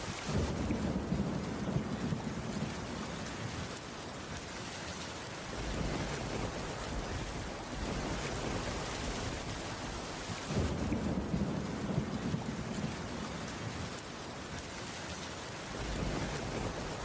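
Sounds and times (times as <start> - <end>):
rain on a wooden roof: 0.0 - 17.0
low thunder rumble: 0.3 - 3.1, 5.6 - 14.0, 15.7 - 17.0.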